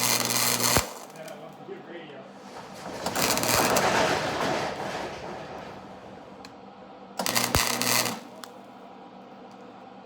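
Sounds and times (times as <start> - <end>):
welding arc crackling and buzzing: 0.0 - 1.6, 3.0 - 3.8, 7.2 - 8.6.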